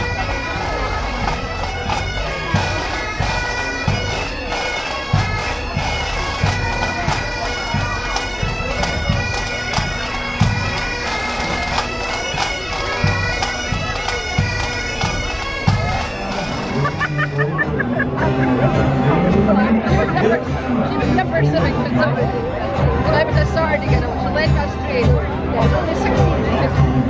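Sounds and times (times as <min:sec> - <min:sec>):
low drum beat: 0:00.0 - 0:17.9
bagpipes playing over drone: 0:00.0 - 0:19.3.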